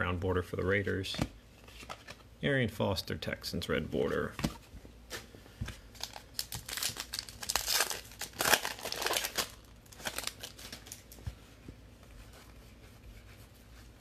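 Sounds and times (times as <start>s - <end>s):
plastic wrapper crinkling and tearing: 5.9s - 11.2s.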